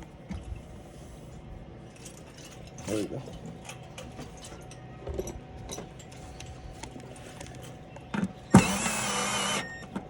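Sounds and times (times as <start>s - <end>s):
cordless drill running: 8.5s - 10.0s.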